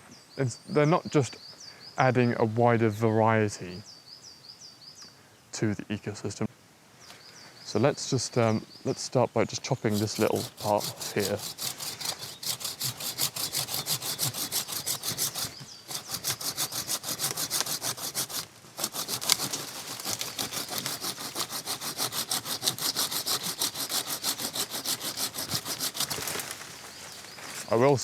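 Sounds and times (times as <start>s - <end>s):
hand saw cutting wood: 9.9s - 26.8s.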